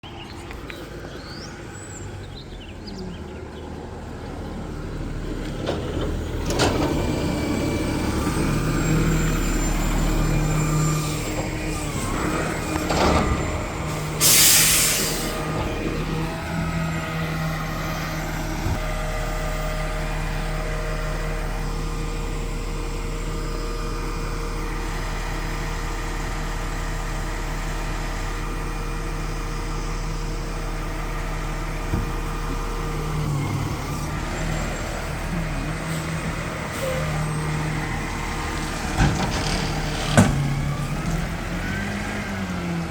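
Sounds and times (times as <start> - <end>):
garbage truck engine: 0.0 - 42.9
air brake hiss: 13.9 - 15.5.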